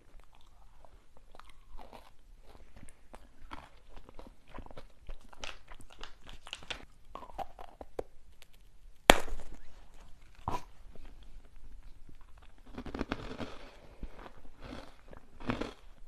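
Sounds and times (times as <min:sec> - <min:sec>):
crunchy snack eating: 0:00.1 - 0:08.0, 0:12.2 - 0:16.0.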